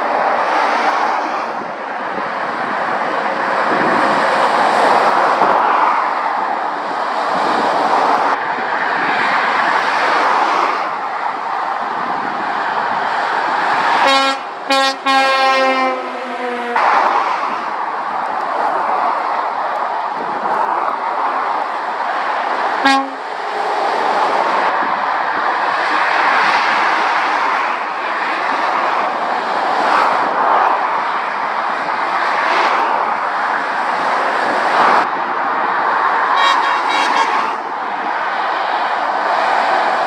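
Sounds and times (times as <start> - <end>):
lorries passing: 0.0 - 40.0
lorry air horn: 14.0 - 16.2, 22.8 - 23.2, 36.4 - 37.6.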